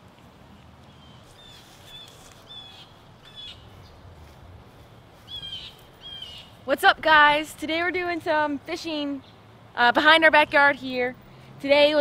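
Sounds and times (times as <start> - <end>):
faint background noise: 0.0 - 12.0
bird calling: 0.9 - 4.0, 5.3 - 6.6.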